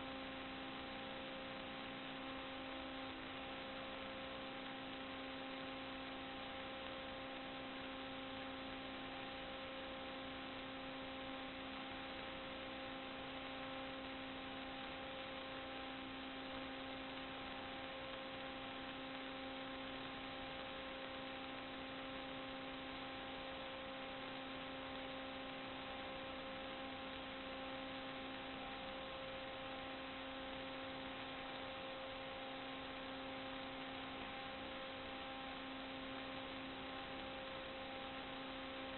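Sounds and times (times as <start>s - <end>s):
electrical hum with hiss: 0.0s - 38.9s.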